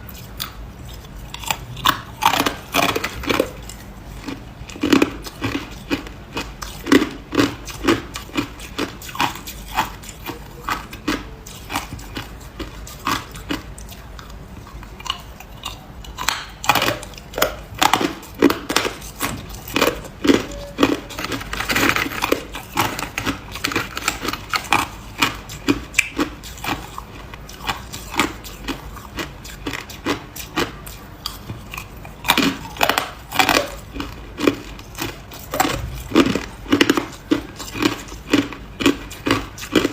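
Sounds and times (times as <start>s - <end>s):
person crunching ice: 17.8s - 30.6s, 31.2s - 39.9s.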